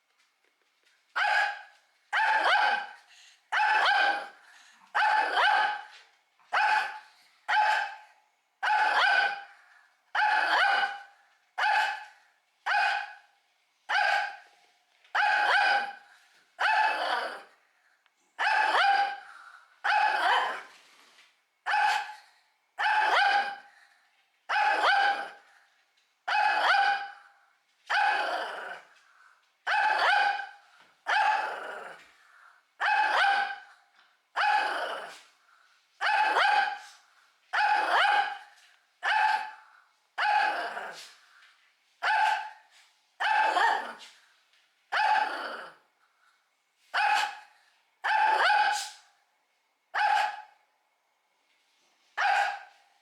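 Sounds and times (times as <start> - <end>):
small dog barking: 1.2 - 4.3, 8.6 - 9.5, 10.2 - 12.1, 12.7 - 13.3, 15.2 - 16.0, 18.4 - 19.2, 19.8 - 20.7, 21.7 - 22.2, 24.5 - 25.4, 26.3 - 27.2, 29.7 - 32.0, 32.8 - 33.7, 34.4 - 35.2, 36.0 - 39.6, 40.2 - 41.1, 42.0 - 42.6, 43.2 - 44.1, 44.9 - 45.8, 47.0 - 49.1, 49.9 - 50.6, 52.2 - 52.8.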